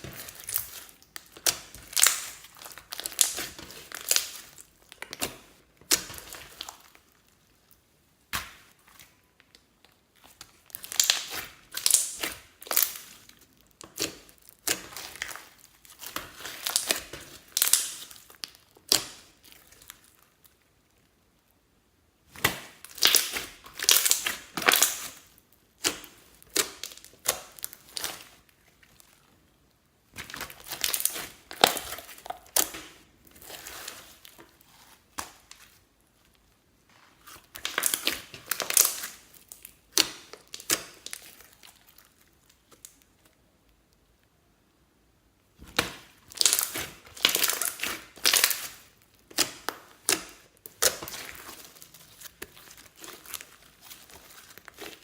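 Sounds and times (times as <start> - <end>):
slime squishing: 0.0 - 21.4, 22.2 - 44.2, 45.5 - 55.0.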